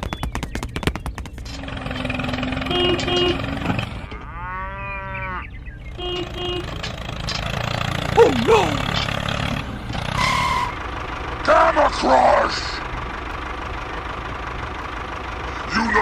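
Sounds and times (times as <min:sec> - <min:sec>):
rapid clicks: 0:00.0 - 0:03.2
cow mooing: 0:01.5 - 0:06.7.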